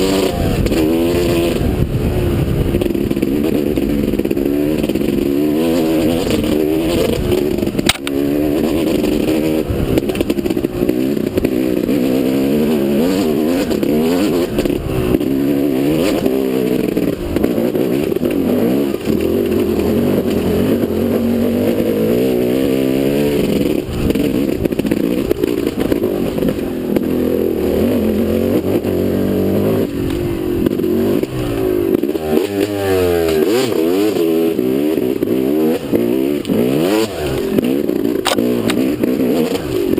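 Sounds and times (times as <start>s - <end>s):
motorcycle engine revving: 0.0s - 39.9s
sharp knocks and clatter: 23.2s - 27.2s.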